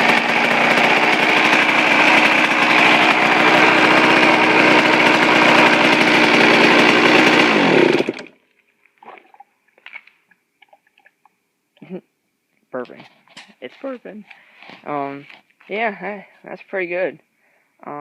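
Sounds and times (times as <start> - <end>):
two-stroke engine idling: 0.0 - 8.4.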